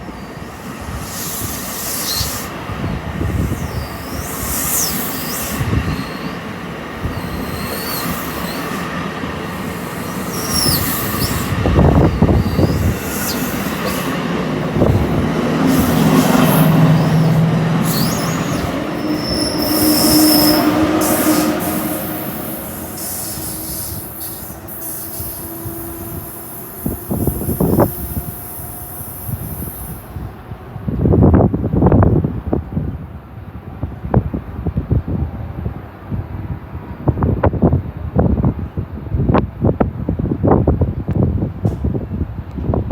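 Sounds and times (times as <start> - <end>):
train wheels squealing on rails: 0.0 - 30.5.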